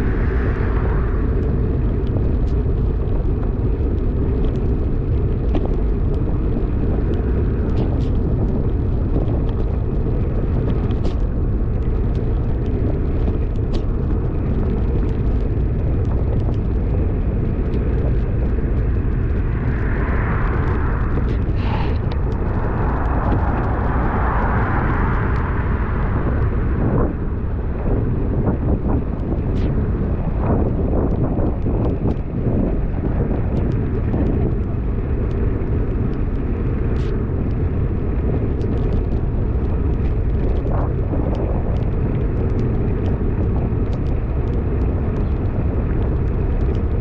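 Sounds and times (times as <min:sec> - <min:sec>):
wind rumble on microphone: 0:00.0 - 0:47.0
raindrops ticking on camera: 0:00.1 - 0:27.3, 0:27.9 - 0:47.0.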